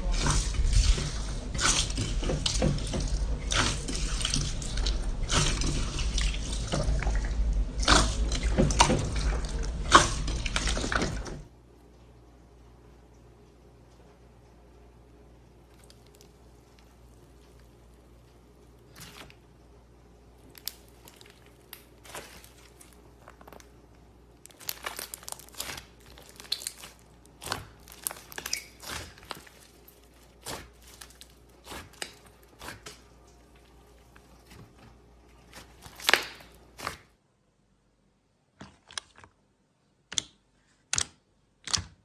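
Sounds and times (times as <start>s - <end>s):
slime crackling and popping: 15.7s - 19.4s, 20.4s - 34.6s, 35.4s - 37.0s.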